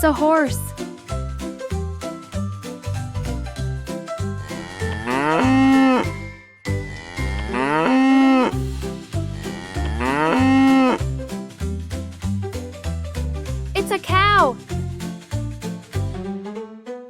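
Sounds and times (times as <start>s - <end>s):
background music with steady beat: 0.0s - 7.2s, 8.5s - 17.0s
cow mooing: 4.4s - 6.1s, 6.9s - 8.6s, 9.4s - 11.0s.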